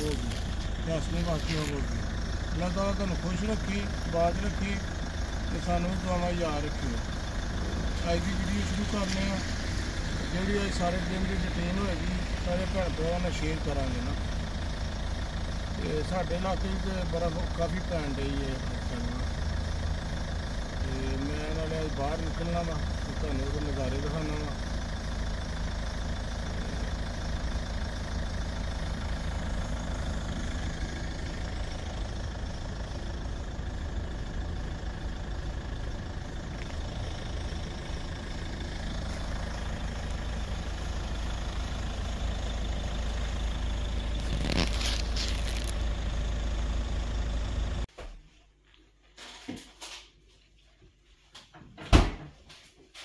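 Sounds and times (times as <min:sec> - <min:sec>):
car engine idling: 0:00.0 - 0:47.9.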